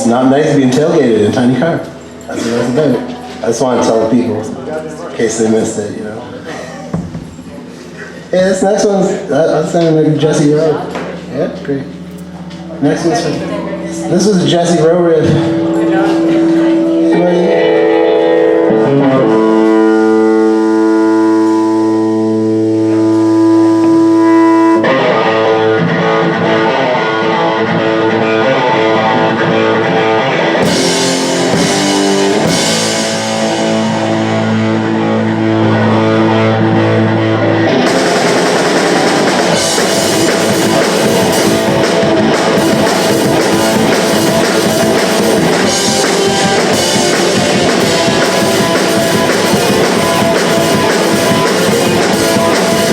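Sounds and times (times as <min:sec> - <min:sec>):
distorted electric guitar riff: 0:00.0 - 0:52.9
drums and bass: 0:06.5 - 0:52.9
cymbals crashing: 0:13.0 - 0:24.7, 0:30.6 - 0:52.9.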